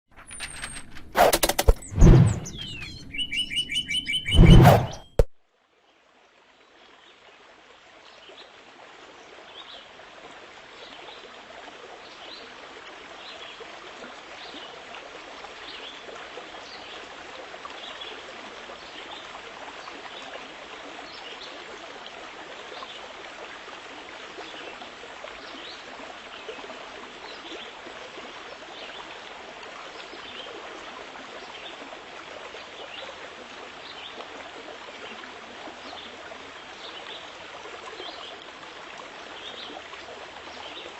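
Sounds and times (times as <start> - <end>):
stream flowing: 0.1 - 40.9
short high chirps: 1.4 - 5.3.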